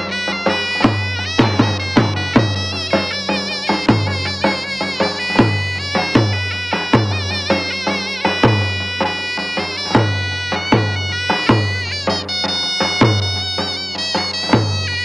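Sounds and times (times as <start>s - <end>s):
shawm playing folk melody: 0.0s - 15.0s.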